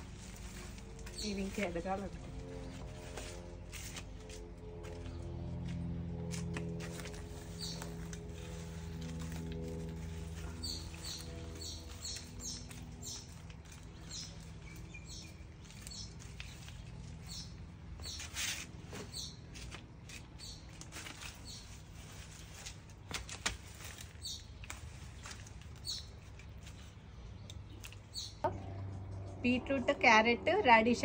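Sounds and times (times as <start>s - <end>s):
low steady hum: 0.0s - 31.0s
small bird chirping: 10.6s - 18.4s, 19.0s - 19.4s, 24.2s - 25.2s, 25.8s - 29.4s.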